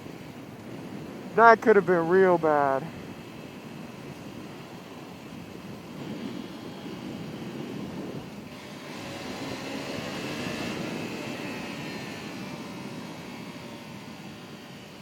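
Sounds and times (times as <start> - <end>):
wind rush on microphone: 0.0 - 15.0
motorcycle engine running: 3.0 - 15.0.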